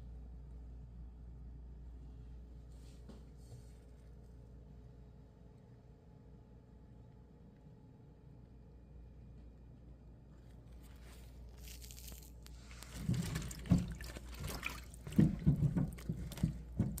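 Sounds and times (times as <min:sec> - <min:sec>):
water splashing in a bowl: 0:11.7 - 0:17.0.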